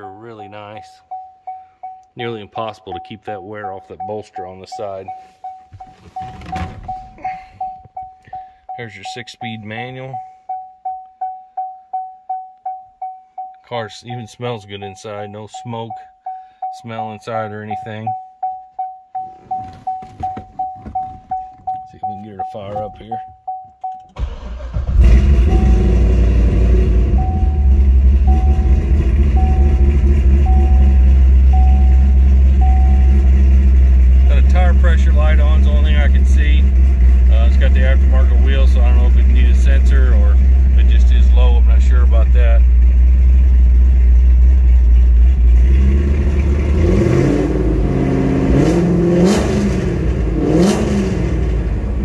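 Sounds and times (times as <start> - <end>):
dashboard warning chime: 0.0 - 24.3, 25.4 - 33.5
car engine idling loudly: 25.0 - 47.0.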